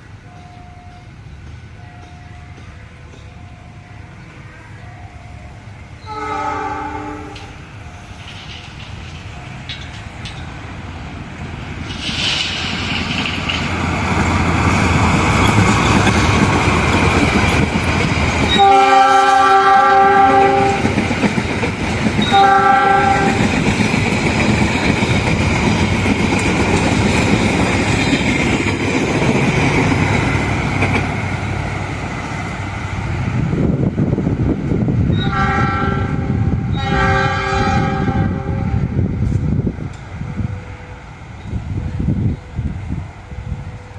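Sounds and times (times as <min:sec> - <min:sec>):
train rumble and wheel clatter: 0:00.0 - 0:43.9
train horn blasts: 0:06.0 - 0:07.6, 0:18.5 - 0:21.0, 0:22.2 - 0:23.5, 0:35.1 - 0:39.0.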